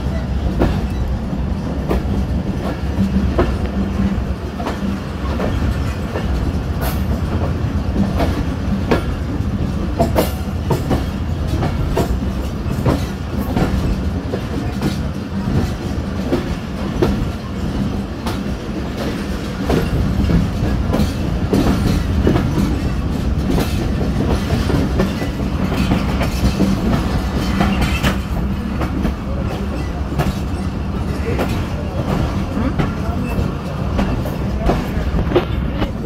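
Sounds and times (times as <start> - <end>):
low train rumble: 0.0 - 36.0
train wheels clattering over joints: 0.0 - 36.0.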